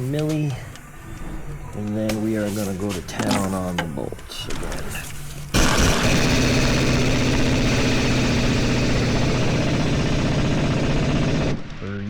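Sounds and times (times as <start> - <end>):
pneumatic tool buzzing: 5.5 - 9.2.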